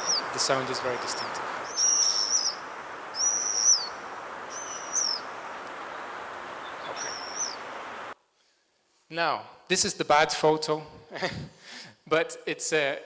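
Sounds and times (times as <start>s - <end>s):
swift screaming calls: 0.0s - 8.2s
steady background hiss: 0.0s - 13.0s.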